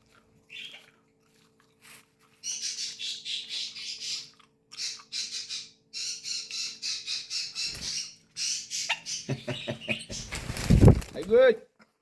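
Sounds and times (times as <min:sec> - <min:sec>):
parrot squawking: 0:02.5 - 0:10.3.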